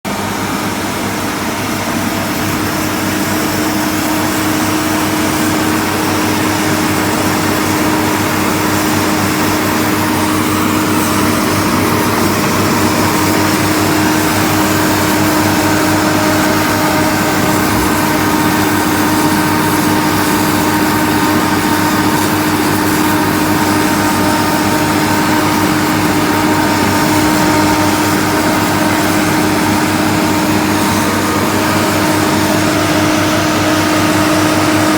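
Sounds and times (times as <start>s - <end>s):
pump engine running steadily: 0.0s - 34.9s.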